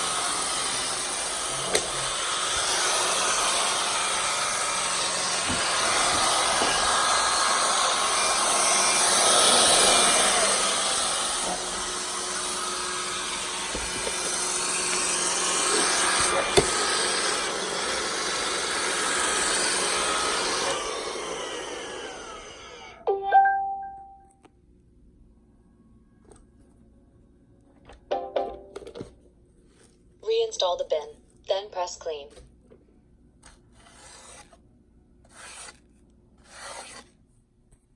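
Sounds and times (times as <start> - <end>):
motor winding down: 0.0 - 23.0
robot vacuum running: 0.0 - 23.0
two-note error chime: 23.1 - 24.3.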